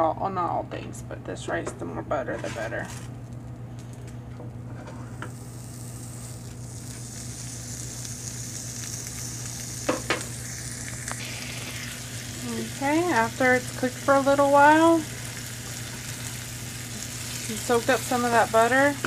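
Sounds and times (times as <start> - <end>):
rice sizzling in a pan: 4.8 - 19.0.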